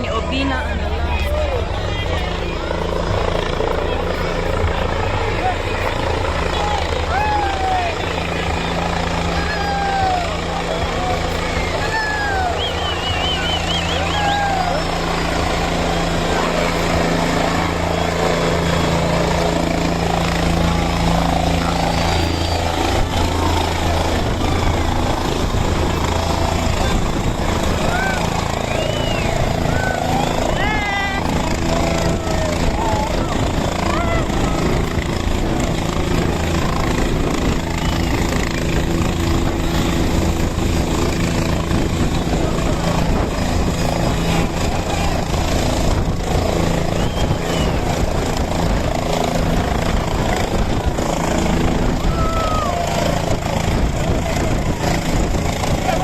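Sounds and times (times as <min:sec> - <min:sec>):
helicopter engine and rotor drone: 0:00.0 - 0:56.0.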